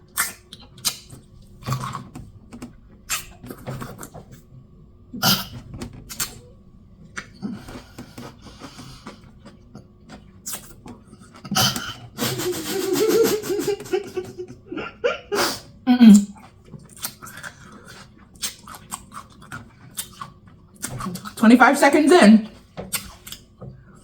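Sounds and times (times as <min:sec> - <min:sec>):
crunchy chewing: 0:00.1 - 0:02.2, 0:07.1 - 0:12.4, 0:16.2 - 0:21.4.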